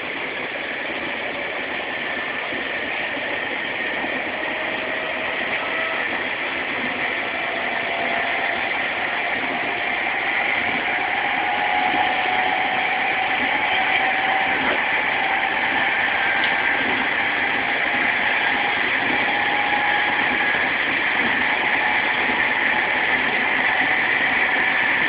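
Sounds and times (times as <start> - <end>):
train car rumble and hiss: 0.0 - 25.0.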